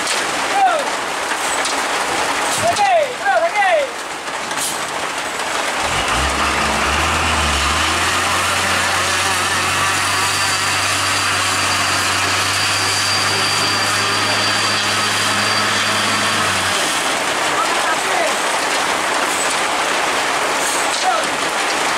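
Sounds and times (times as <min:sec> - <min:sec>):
hiss of wet road or rain: 0:04.0 - 0:09.9, 0:14.4 - 0:21.8
vehicle engine running: 0:05.6 - 0:17.5.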